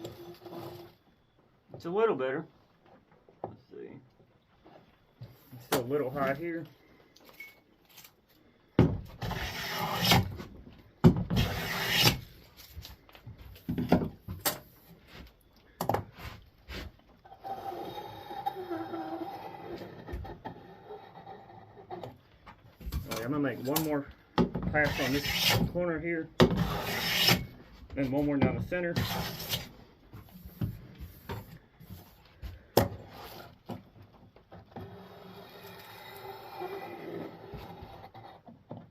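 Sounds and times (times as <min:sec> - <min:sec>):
wood and tools knocking: 0:08.8 - 0:09.3, 0:13.6 - 0:14.7, 0:24.4 - 0:24.8
hand plane rasping along wood: 0:09.2 - 0:10.2, 0:11.4 - 0:12.2, 0:24.8 - 0:25.7, 0:26.6 - 0:27.4, 0:29.0 - 0:29.7
knocks and scrapes: 0:17.9 - 0:38.9.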